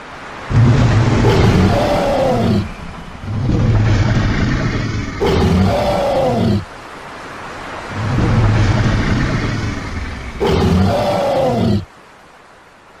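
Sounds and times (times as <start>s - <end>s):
creature roar falling in pitch: 0.5s - 6.7s, 8.0s - 11.9s
low rumbling growl: 0.5s - 6.7s, 7.9s - 11.9s.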